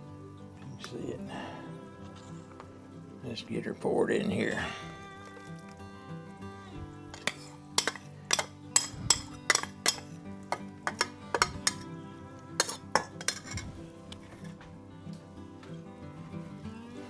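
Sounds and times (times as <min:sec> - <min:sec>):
background music: 0:00.0 - 0:17.0
utensil clinking against pot: 0:06.7 - 0:14.8
sauce being poured and scraped: 0:07.1 - 0:11.8, 0:12.6 - 0:14.7.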